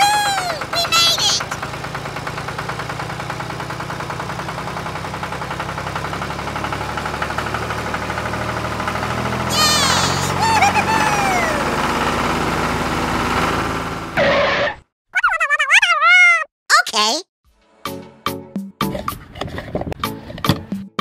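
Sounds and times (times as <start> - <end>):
tractor engine chugging: 0.0 - 14.2
call gliding up and down in pitch: 9.5 - 11.8.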